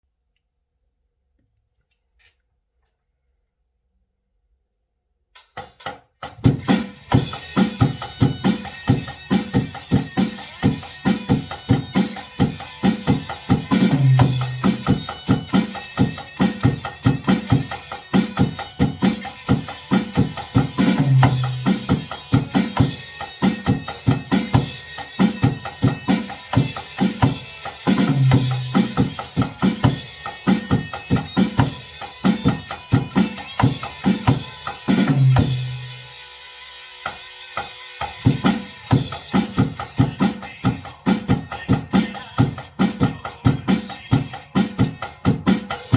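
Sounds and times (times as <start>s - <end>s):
drum kit playing steady beat: 5.4s - 45.9s
pop gospel song: 39.3s - 45.5s.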